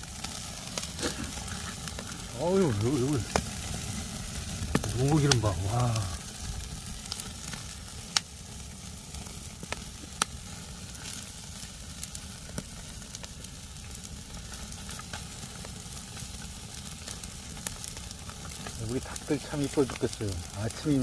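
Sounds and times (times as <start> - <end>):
fire pops and crackles: 0.0 - 21.0
fish sizzling over wood fire: 0.0 - 21.0.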